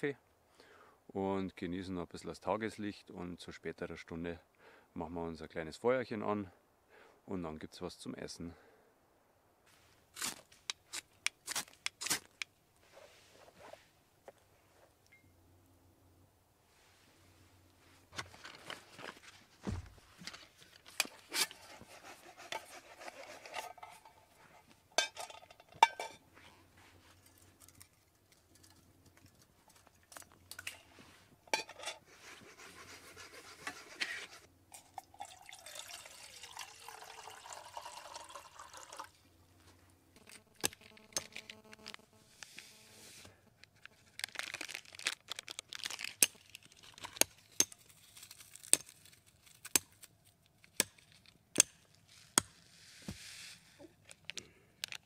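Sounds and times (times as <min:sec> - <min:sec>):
metal cookware clinking: 0:25.0 - 0:26.2, 0:31.5 - 0:32.0
water pouring: 0:34.7 - 0:39.2.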